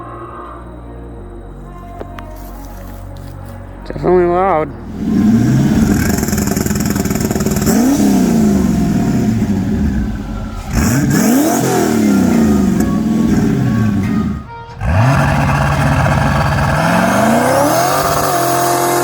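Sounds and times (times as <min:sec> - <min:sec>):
car engine revving: 0:04.7 - 0:19.0.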